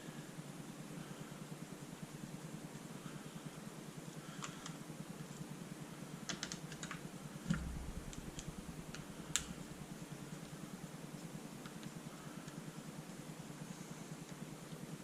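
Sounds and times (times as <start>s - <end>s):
steady low hum: 0.0s - 15.0s
dull thump: 7.5s - 9.7s.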